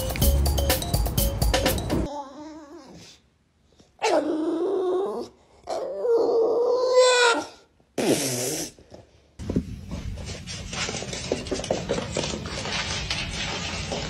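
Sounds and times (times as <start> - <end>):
bulldog grumbling and whining: 4.0 - 7.6.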